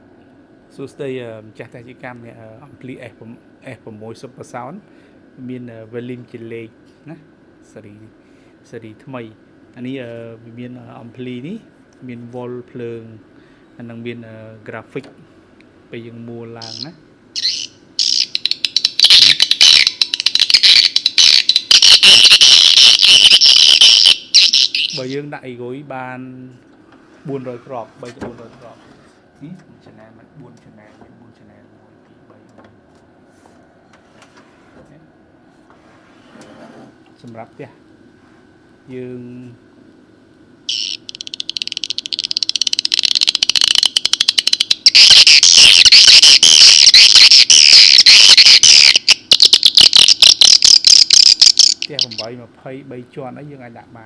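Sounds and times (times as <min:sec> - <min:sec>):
bird calls through loudspeaker: 0:16.6 - 0:25.2, 0:40.7 - 0:41.7, 0:43.6 - 0:52.3
rapid clicks: 0:18.0 - 0:25.1, 0:40.7 - 0:52.3.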